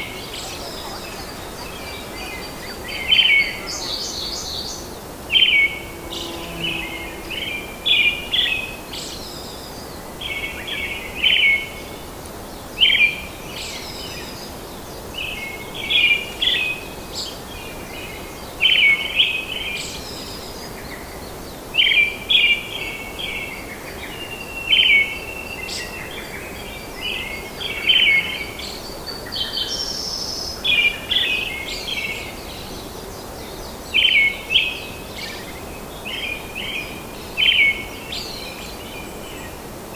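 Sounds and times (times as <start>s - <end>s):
bird chirping: 0.0s - 11.8s
forest ambience hiss: 0.0s - 39.9s.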